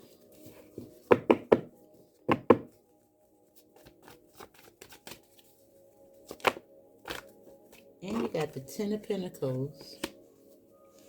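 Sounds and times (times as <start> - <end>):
light card clicks and rustles: 3.6 - 5.5, 9.8 - 10.3
cards slapping on table: 10.0 - 10.2.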